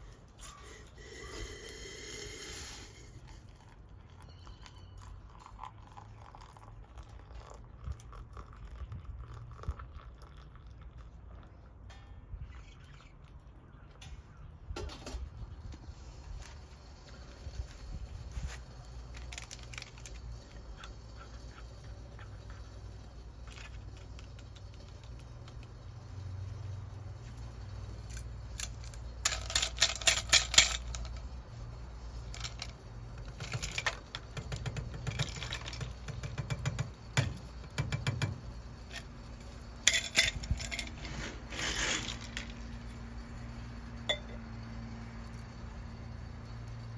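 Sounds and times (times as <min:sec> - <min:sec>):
small hard items clinking: 0:19.0 - 0:20.4, 0:28.0 - 0:31.2, 0:39.8 - 0:42.7.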